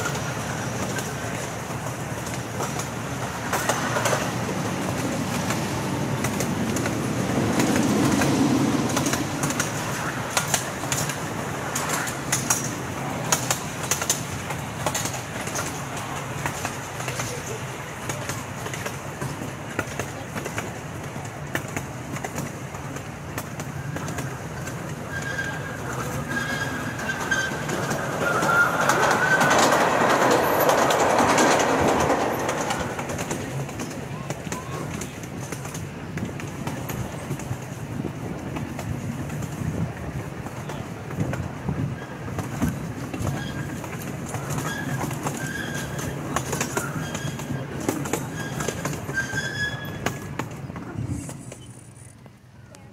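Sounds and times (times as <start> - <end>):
ride train rolling on track: 0.0 - 52.9
wheels squealing metallically: 23.6 - 35.0, 41.8 - 52.2.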